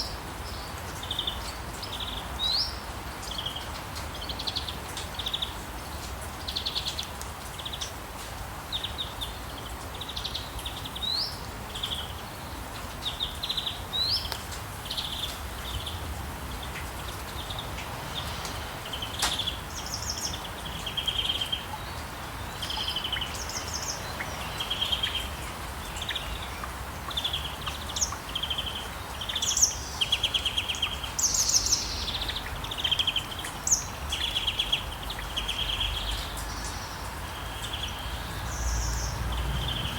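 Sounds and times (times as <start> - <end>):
steady low hiss: 0.0 - 39.9
songbirds trilled chirps: 8.6 - 39.9.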